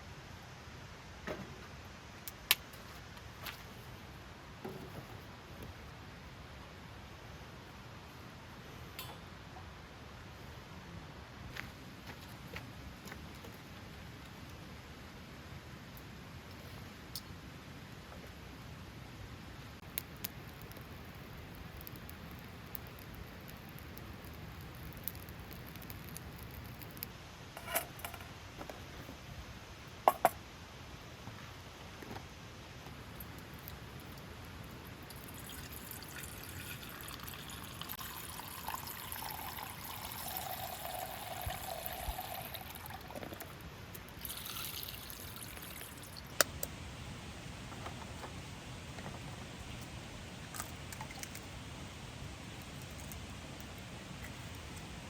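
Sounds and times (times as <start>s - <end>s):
liquid pouring into container: 35.0s - 43.6s, 44.2s - 46.3s.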